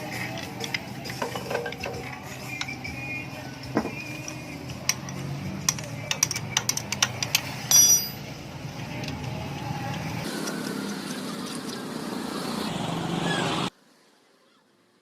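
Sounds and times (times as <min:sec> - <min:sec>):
tools and metal parts clinking: 0:00.1 - 0:10.1
ringing metal clank: 0:07.6 - 0:08.3.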